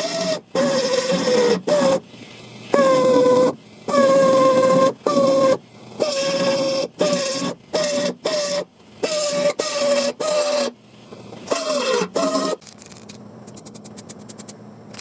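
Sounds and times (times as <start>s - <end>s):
power tool motor whine: 0.0s - 2.0s, 11.5s - 12.7s.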